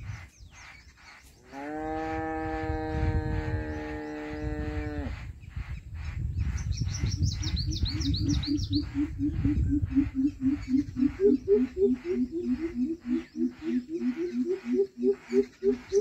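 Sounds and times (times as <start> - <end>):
birds chirping: 0.0 - 2.3, 3.3 - 16.0.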